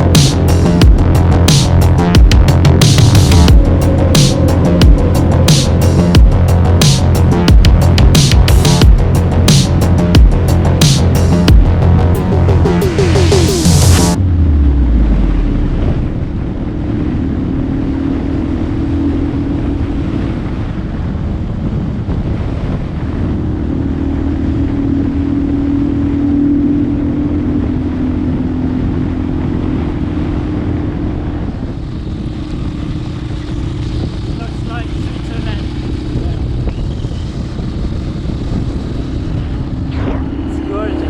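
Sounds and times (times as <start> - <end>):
motorcycle engine running: 0.0 - 17.9, 27.4 - 41.0
wind rushing over microphone: 0.0 - 41.0.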